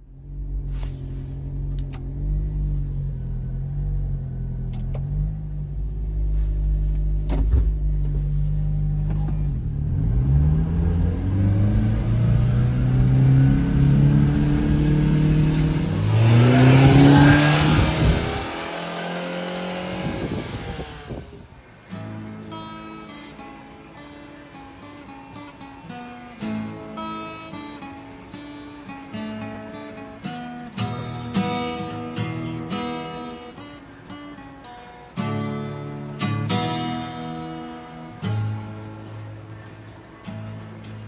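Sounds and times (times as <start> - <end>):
small truck engine revving: 0.0 - 23.4.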